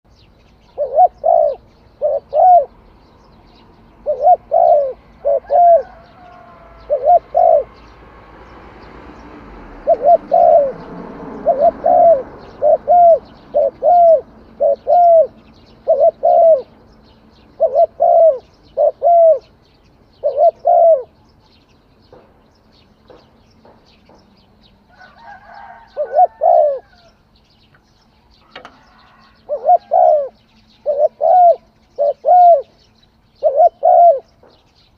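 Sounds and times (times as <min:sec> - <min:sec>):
dove cooing: 0:00.6 - 0:02.8, 0:03.5 - 0:08.0, 0:09.5 - 0:19.6, 0:20.2 - 0:21.2, 0:24.9 - 0:27.1, 0:28.4 - 0:34.5.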